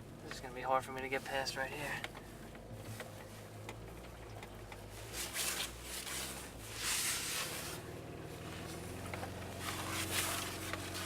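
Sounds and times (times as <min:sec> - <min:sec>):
car engine humming: 0:00.0 - 0:11.0
tyres rushing through snow: 0:04.9 - 0:11.0.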